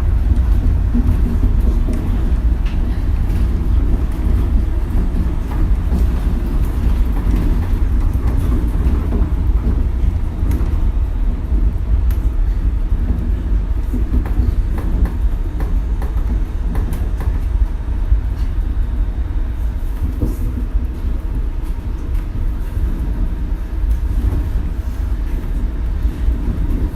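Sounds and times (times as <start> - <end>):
monorail car rumble: 0.0 - 26.9
knocks and rattles: 0.3 - 10.8.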